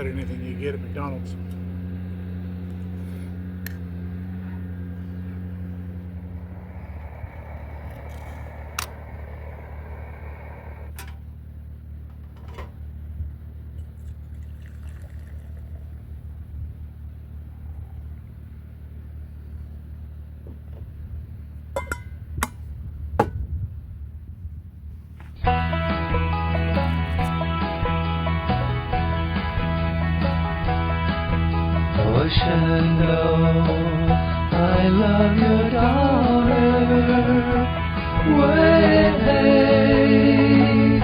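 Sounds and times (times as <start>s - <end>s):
low mechanical hum: 0.0s - 41.0s
light clinks and knocks: 21.8s - 22.6s.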